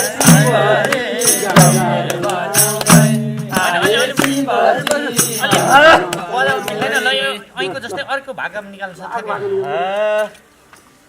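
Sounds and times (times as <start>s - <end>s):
sharp percussion strokes: 0.0s - 7.2s
voices singing folk song: 0.0s - 7.8s.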